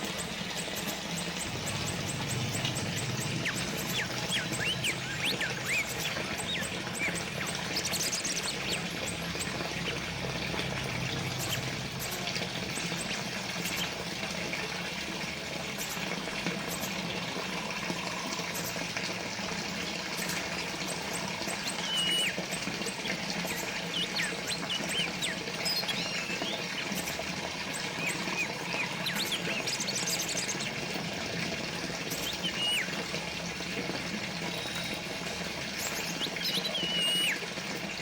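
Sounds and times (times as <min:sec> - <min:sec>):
fountain water trickling: 0:00.0 - 0:38.0
bird chirps: 0:01.1 - 0:10.0, 0:21.5 - 0:27.2, 0:32.1 - 0:32.9, 0:35.7 - 0:37.4.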